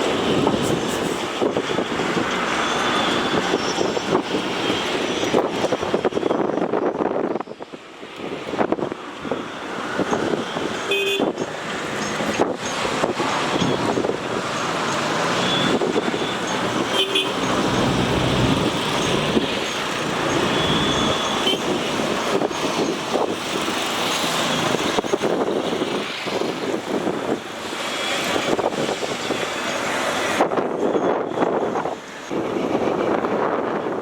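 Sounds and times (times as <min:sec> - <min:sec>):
river boat and busy surroundings: 0:00.0 - 0:34.0
short high horn toots: 0:16.9 - 0:17.5.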